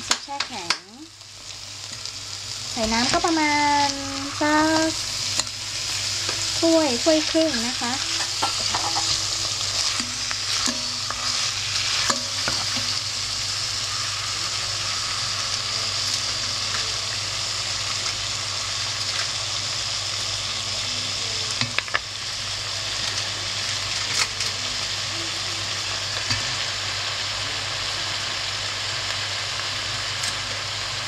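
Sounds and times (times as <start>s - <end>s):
food sizzling in a pot: 0.0s - 31.0s.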